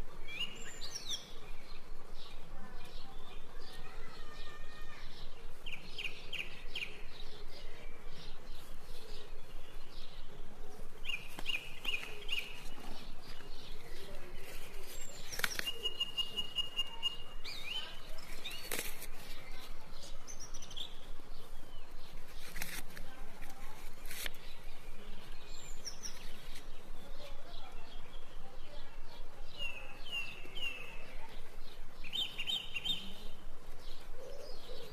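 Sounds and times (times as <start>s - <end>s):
birds chirping: 0.0s - 34.9s.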